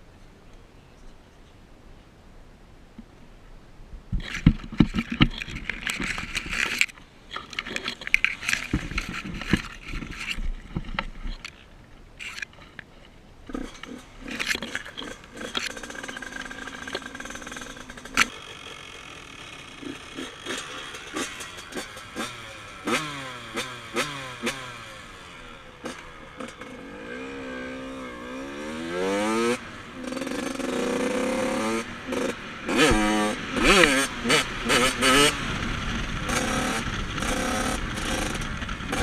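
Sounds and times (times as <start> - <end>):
dirt bike engine running: 7.5 - 10.4, 13.5 - 39.0.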